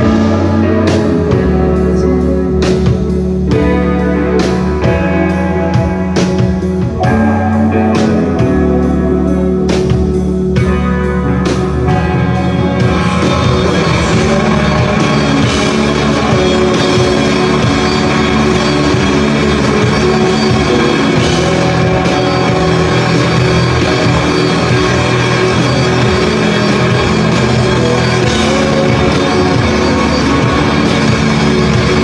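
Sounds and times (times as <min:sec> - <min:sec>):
rock band playing live: 0:00.0 - 0:32.0
drum strikes: 0:11.5 - 0:32.0.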